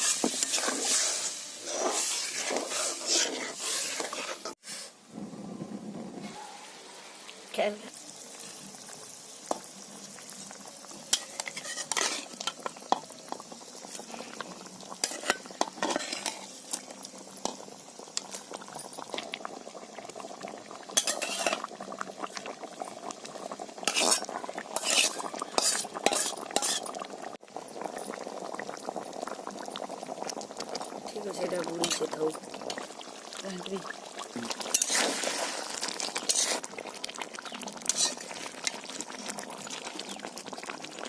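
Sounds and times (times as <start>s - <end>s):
metal spoon scraping a pan: 0.0s - 4.9s, 11.1s - 13.1s, 15.0s - 17.6s, 21.0s - 21.7s, 23.8s - 27.0s, 31.8s - 32.8s, 34.6s - 36.7s, 37.8s - 38.8s
food sizzling: 0.0s - 5.0s, 6.0s - 41.0s.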